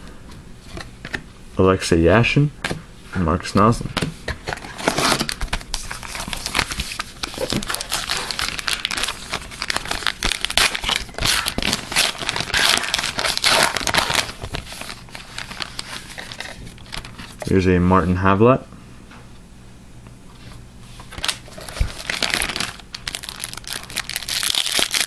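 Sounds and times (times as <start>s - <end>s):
card pack wrapper crinkling and tearing: 4.6s - 17.4s, 21.1s - 25.0s.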